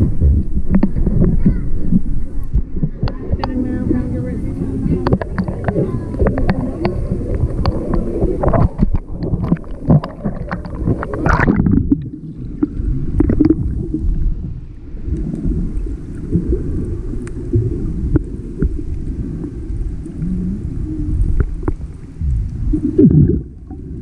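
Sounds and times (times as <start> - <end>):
water splashing and knocking: 0.0 - 14.0
underwater rumble and gurgling: 0.0 - 24.0.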